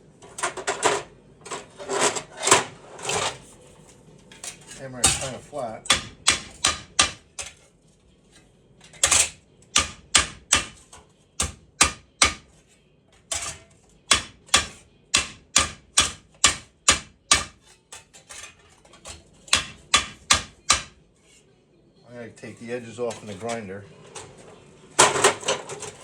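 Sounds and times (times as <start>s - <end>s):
hammer striking steel plate: 5.9s - 7.5s, 9.0s - 10.8s, 11.4s - 12.5s, 13.3s - 17.6s, 19.5s - 21.0s.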